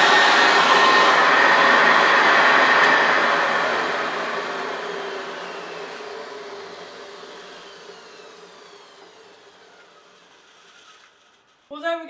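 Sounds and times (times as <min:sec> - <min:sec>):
vacuum cleaner motor winding down: 0:00.0 - 0:11.7.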